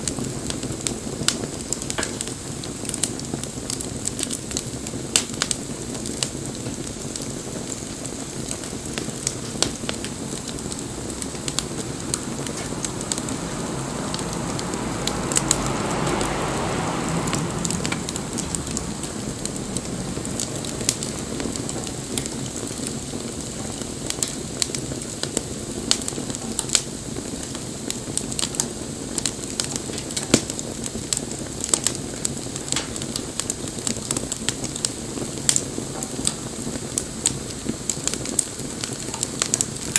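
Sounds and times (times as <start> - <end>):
bonfire crackling and popping: 0.0 - 39.9
soft rushing sound: 10.2 - 22.1.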